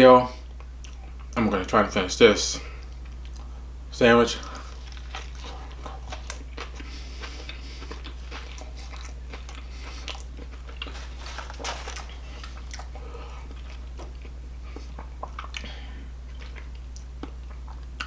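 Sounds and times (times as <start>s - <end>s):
small crunches: 4.4s - 15.7s
chewing and biting sandwich: 4.4s - 18.0s.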